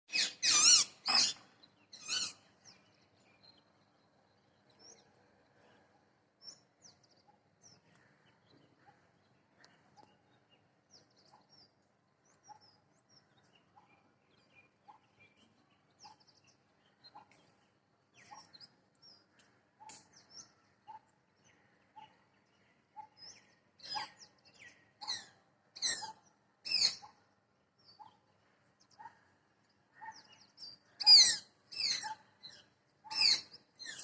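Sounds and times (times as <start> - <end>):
parrot screeching: 0.1 - 1.4
birds chirping: 0.1 - 34.0.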